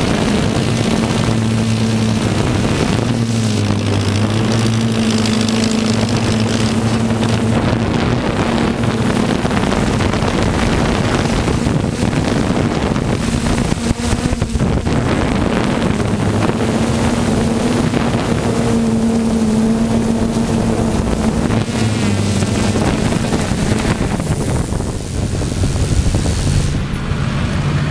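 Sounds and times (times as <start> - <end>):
tractor engine at high revs: 0.0 - 27.9
wind rumbling on microphone: 0.0 - 27.9.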